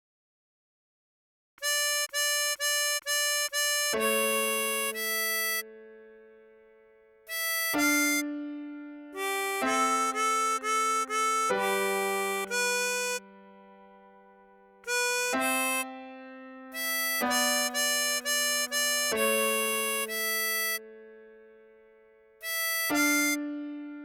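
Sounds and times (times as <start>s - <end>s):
tremolo harmonica melody: 1.6s - 6.3s, 7.3s - 13.8s, 14.8s - 21.1s, 22.4s - 24.0s.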